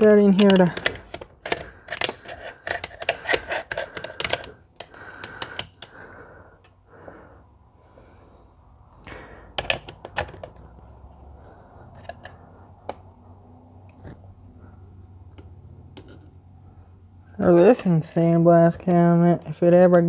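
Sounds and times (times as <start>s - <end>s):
metal parts and tools clinking: 0.0s - 5.9s.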